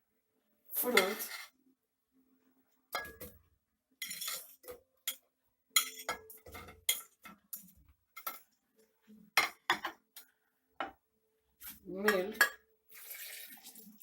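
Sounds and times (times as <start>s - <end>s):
metal utensil clinking on dishes: 3.0s - 3.4s, 4.0s - 5.2s, 5.8s - 8.5s.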